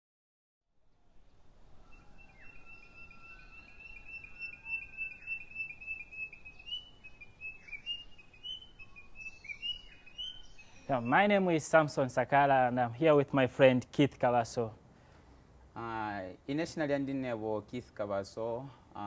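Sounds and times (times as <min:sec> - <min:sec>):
faint outdoor background noise: 0:00.7 - 0:19.0
birds chirping: 0:01.3 - 0:13.0.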